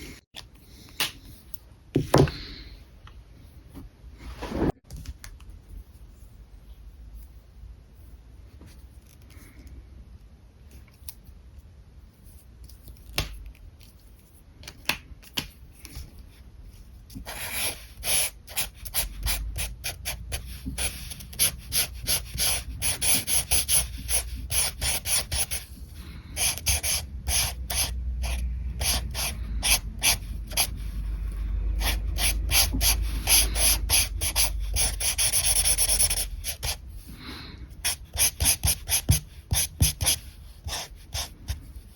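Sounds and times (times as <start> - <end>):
marker nib rubbing on paper: 17.2 - 25.7, 26.4 - 30.8, 31.8 - 36.8, 37.8 - 41.6.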